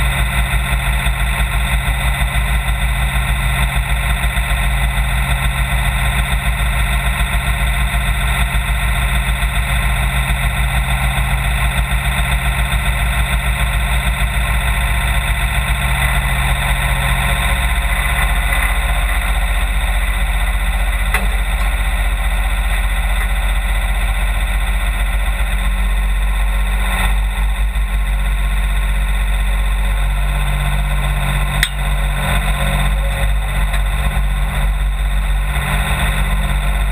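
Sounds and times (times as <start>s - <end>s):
truck engine running: 0.0s - 36.9s
sharp click: 31.6s - 31.8s.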